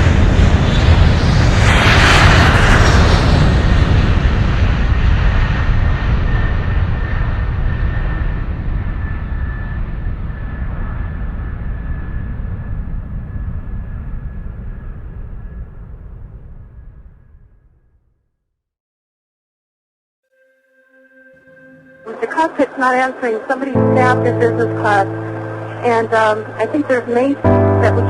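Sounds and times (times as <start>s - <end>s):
jet airliner passing by: 0.0s - 16.9s, 20.9s - 28.0s.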